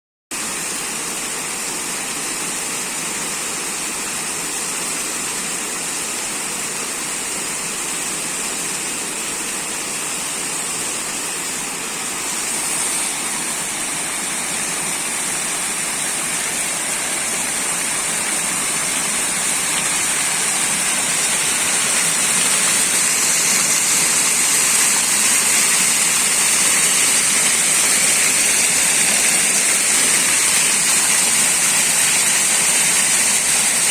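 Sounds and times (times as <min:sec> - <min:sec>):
waterfall rushing: 0:11.1 - 0:33.0.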